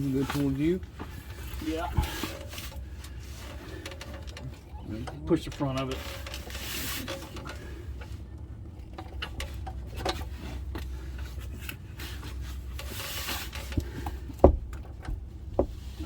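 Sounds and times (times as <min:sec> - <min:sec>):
metal scraping and rubbing: 0:05.6 - 0:07.5.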